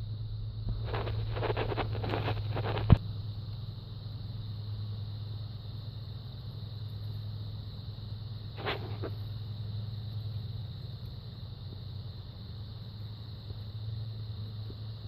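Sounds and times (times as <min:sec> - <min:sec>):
metallic clicks and scrapes: 0:00.7 - 0:03.0
car engine idling: 0:02.4 - 0:15.0.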